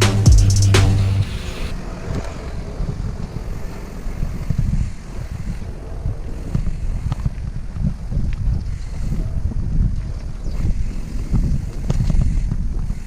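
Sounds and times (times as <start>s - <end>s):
background music with drum hit: 0.0s - 1.7s
wind rumbling on microphone: 1.4s - 13.0s.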